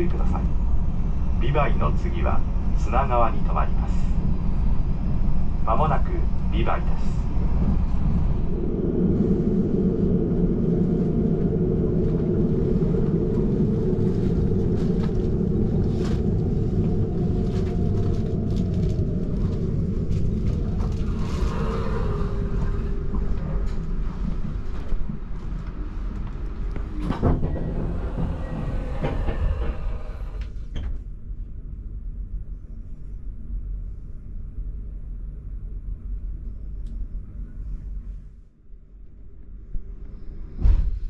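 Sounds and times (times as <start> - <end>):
train wheels rumbling on rail: 0.0 - 31.3.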